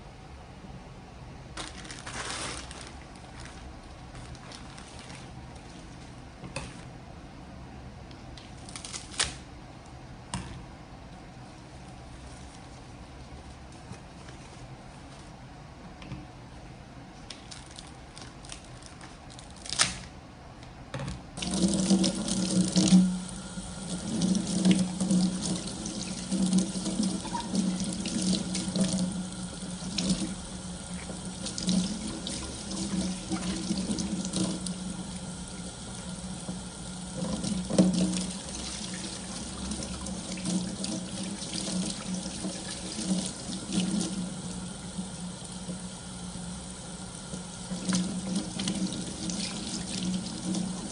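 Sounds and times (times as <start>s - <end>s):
water running into a sink: 21.4s - 50.9s.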